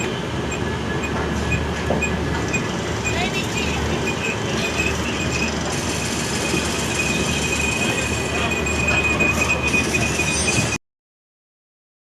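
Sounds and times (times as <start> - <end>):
train wheels rumbling on rail: 0.0 - 10.8
high-pitched wheel squeal: 2.0 - 10.8.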